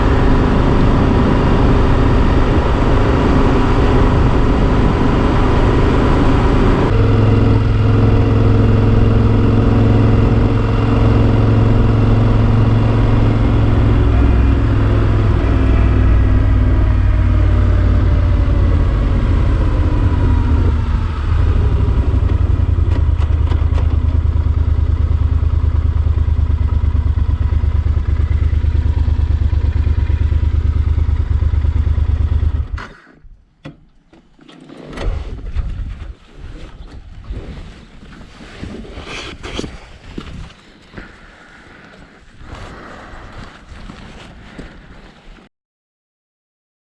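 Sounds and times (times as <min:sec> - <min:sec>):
motorcycle engine running: 0:00.0 - 0:33.3.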